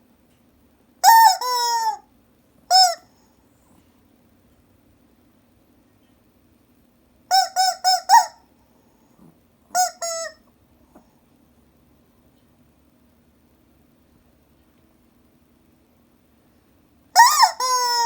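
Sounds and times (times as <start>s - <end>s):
chicken toy squeaky clucks: 1.0s - 2.0s, 2.7s - 3.1s, 7.3s - 8.4s, 9.7s - 10.4s, 17.2s - 18.0s.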